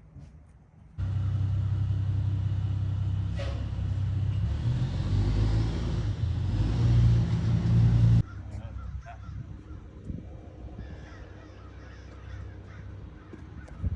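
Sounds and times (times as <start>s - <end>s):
skid steer engine running: 1.0s - 8.3s.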